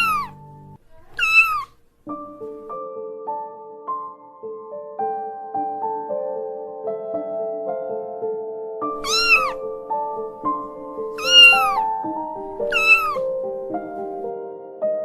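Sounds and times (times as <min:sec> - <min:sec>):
kitten meowing: 0:00.0 - 0:01.8, 0:09.0 - 0:09.7, 0:11.1 - 0:13.4
soft piano music: 0:00.0 - 0:15.0.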